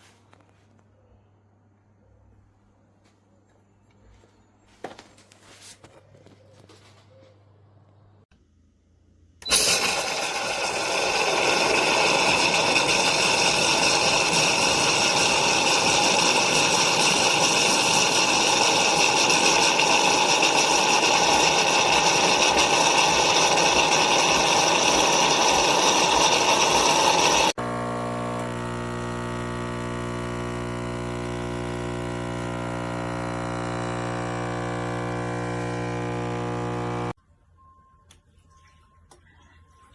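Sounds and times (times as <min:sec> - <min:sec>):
espresso machine buzzing hum: 0:09.4 - 0:37.2
espresso machine hiss and whine: 0:09.4 - 0:37.2.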